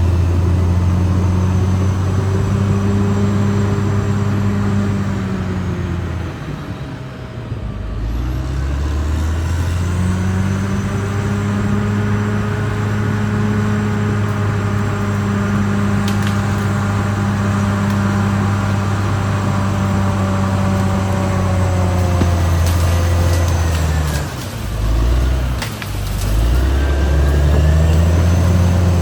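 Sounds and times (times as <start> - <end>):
bulldozer diesel engine running: 0.0 - 29.0.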